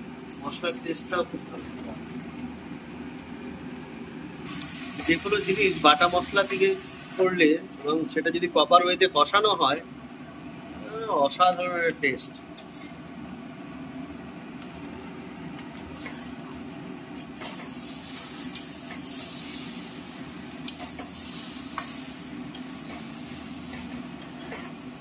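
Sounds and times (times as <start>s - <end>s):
food sizzling in a pan: 0.0s - 8.9s, 12.4s - 25.0s
utensil clicking against pan: 20.6s - 21.1s.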